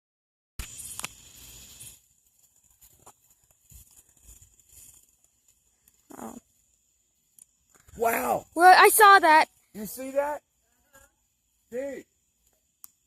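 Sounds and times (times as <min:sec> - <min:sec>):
rustling crackling noise: 0:00.6 - 0:10.0.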